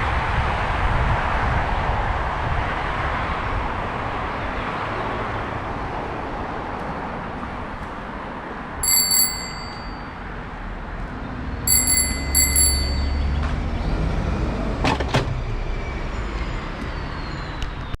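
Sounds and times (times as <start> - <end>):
outdoor background noise: 0.0 - 18.0
bicycle bell ringing: 8.8 - 10.4, 11.7 - 13.4.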